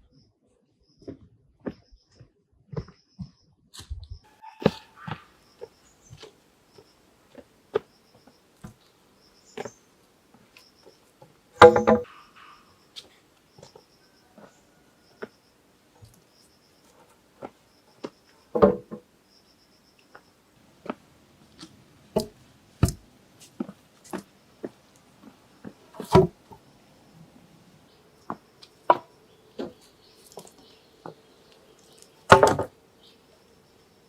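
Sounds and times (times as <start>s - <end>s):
knocks and taps from hand work: 11.6s - 12.1s.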